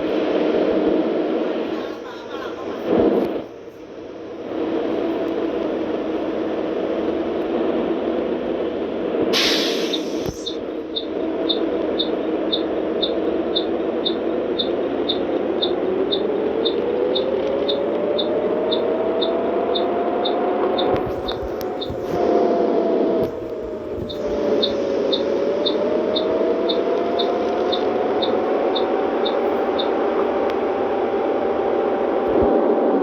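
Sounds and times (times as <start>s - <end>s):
car engine: 0.0s - 33.0s
tyres on wet road: 0.0s - 33.0s
hiss of spray: 9.3s - 10.6s
light ticking: 10.2s - 22.0s, 23.4s - 30.6s.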